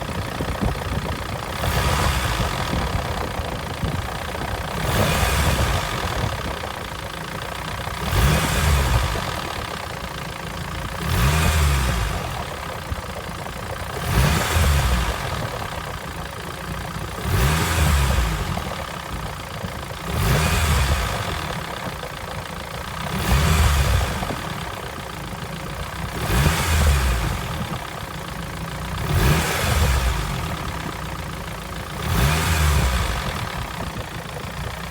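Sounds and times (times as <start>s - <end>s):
car engine revving: 1.5s - 6.6s, 7.8s - 9.8s, 10.9s - 12.6s, 14.0s - 15.8s, 17.1s - 19.0s, 20.0s - 21.8s, 23.0s - 24.8s, 25.7s - 27.9s, 28.9s - 31.1s, 31.8s - 34.0s.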